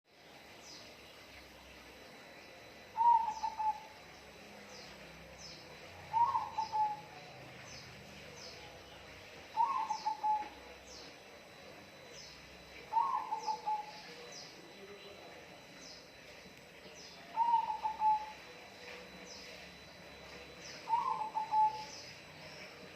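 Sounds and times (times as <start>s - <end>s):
faint high chirps: 0.1s - 22.9s.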